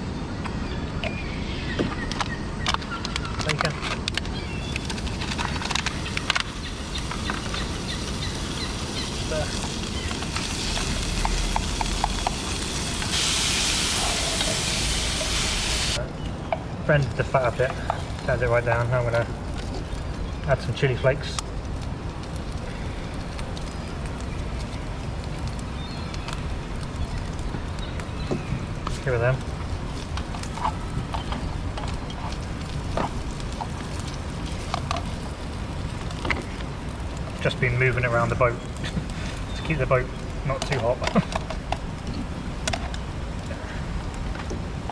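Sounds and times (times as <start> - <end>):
fat popping and crackling: 1.1 - 44.9
bacon sizzling in a pan: 4.6 - 16.0.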